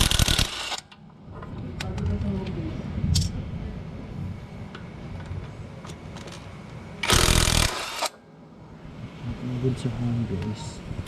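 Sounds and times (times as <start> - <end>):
power tool burst: 0.0 - 0.8, 7.0 - 8.2.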